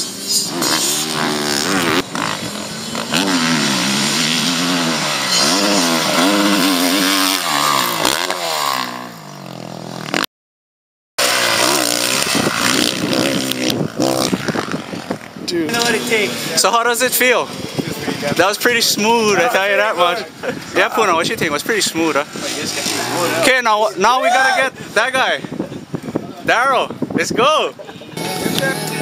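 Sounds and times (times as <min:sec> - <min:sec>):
motocross bike engine revving: 0:00.0 - 0:10.3, 0:11.2 - 0:17.2, 0:21.8 - 0:23.9.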